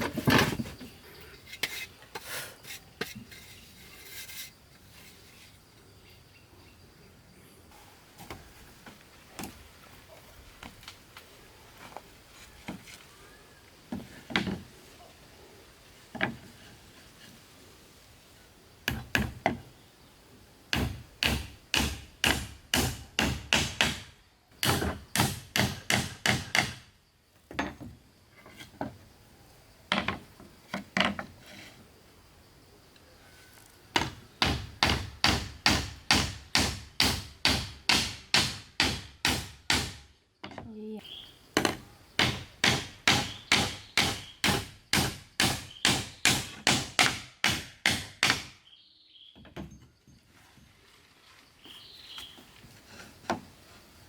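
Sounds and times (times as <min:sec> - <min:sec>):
hand tool striking wood: 0:18.8 - 0:19.6, 0:20.7 - 0:26.9, 0:33.9 - 0:40.6, 0:41.6 - 0:48.6.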